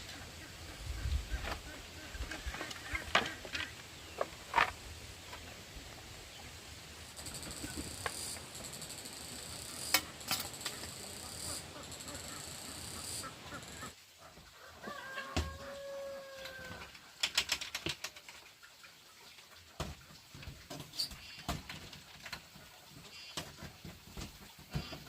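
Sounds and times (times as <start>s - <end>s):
insect chirring: 7.1s - 13.9s.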